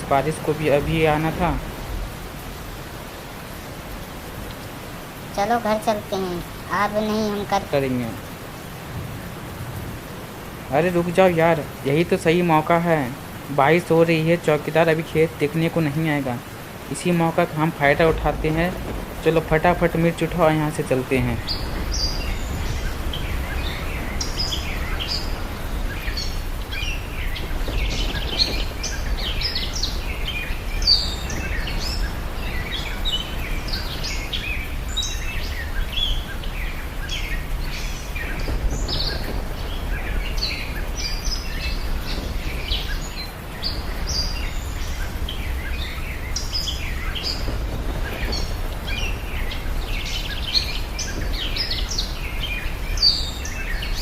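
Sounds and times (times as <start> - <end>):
birds chirping: 0.0 - 54.0
low rumble: 17.7 - 34.8.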